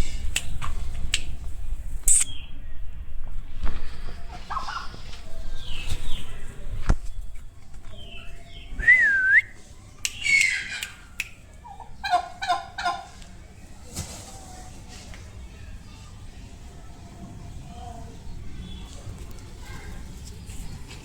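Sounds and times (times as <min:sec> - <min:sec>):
turkeys gobbling: 0:04.2 - 0:05.1, 0:10.1 - 0:13.3.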